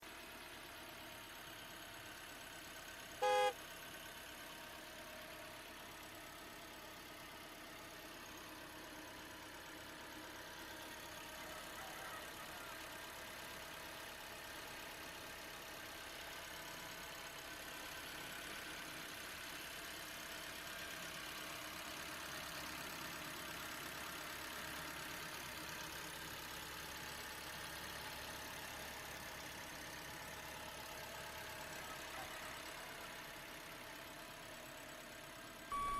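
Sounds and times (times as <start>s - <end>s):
loud horn-like beep: 3.2s - 3.6s.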